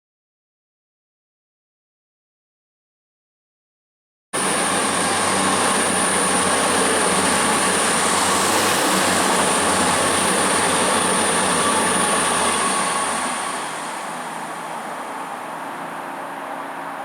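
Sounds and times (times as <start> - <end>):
high-pitched whine: 4.4 - 17.0
train wheels rumbling on rail: 4.4 - 17.0.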